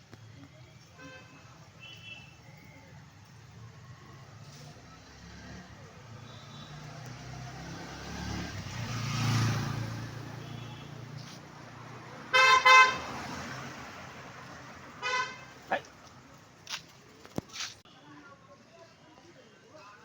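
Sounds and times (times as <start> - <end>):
vehicle engine rumble passing: 3.5 - 17.2
vehicle horn toots: 10.4 - 11.1, 12.3 - 13.2, 15.0 - 15.6.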